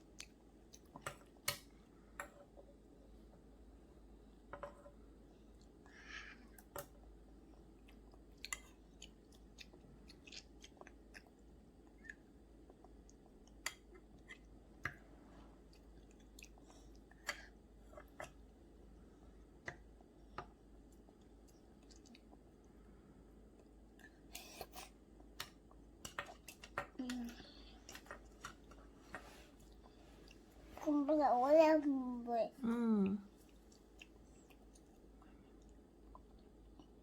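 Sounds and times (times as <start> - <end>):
child chewing food: 0.0 - 3.5, 5.4 - 22.8, 23.4 - 31.0, 33.2 - 37.0.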